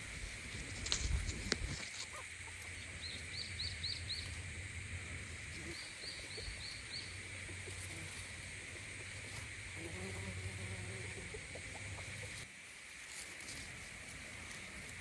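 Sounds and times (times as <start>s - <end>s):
small bird chirping: 2.0s - 4.4s, 5.6s - 8.0s.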